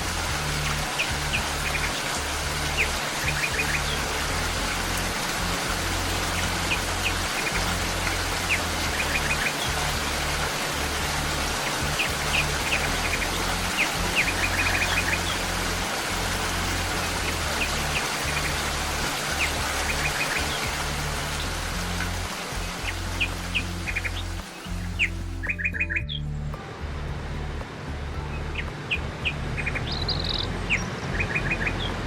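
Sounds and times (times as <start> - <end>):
steady rain: 0.0 - 25.6, 26.5 - 32.0
soft low sustained music: 0.0 - 32.0
high bird chirps: 0.9 - 4.2, 22.8 - 26.3.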